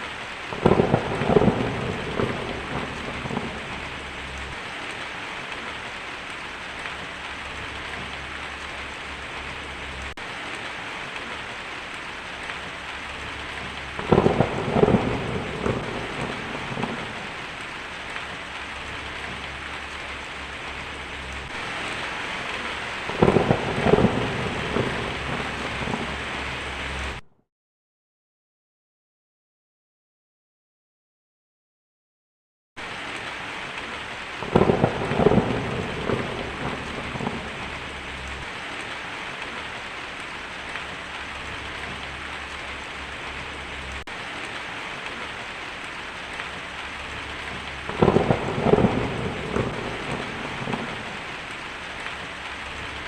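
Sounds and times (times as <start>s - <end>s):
heavy rain on a tin roof: 0.0s - 27.2s, 32.8s - 53.0s
rolls of thunder: 0.5s - 4.6s, 13.4s - 17.6s, 21.4s - 27.2s, 34.4s - 38.5s, 47.1s - 51.4s.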